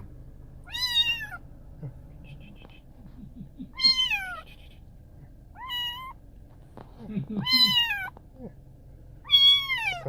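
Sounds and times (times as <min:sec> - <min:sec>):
kitten meowing: 0:00.6 - 0:01.4, 0:03.7 - 0:04.5, 0:05.6 - 0:06.2, 0:07.4 - 0:08.2, 0:09.2 - 0:10.0.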